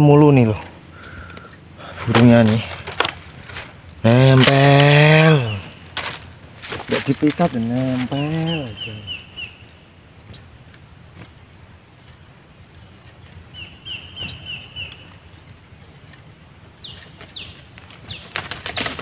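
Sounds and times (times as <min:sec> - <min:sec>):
rustling: 0:00.5 - 0:19.0
bird wings fluttering: 0:01.9 - 0:10.5, 0:17.0 - 0:19.0.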